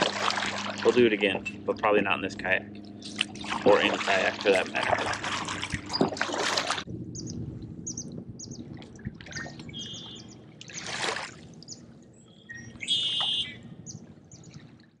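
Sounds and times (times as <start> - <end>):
faint lapping water: 0.0 - 15.0
small birds chirping: 7.1 - 8.7, 9.3 - 10.9, 11.7 - 14.6
bird trills: 7.2 - 8.6, 9.3 - 11.0, 11.7 - 14.6.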